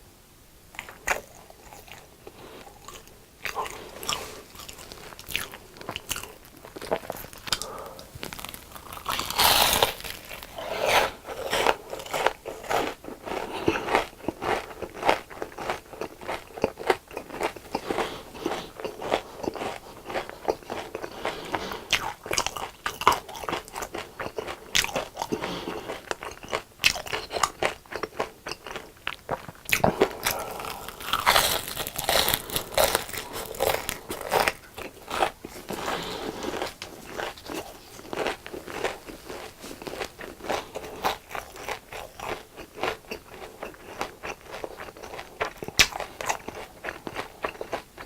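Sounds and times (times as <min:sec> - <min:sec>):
crunchy food chewing: 0:00.7 - 0:48.0.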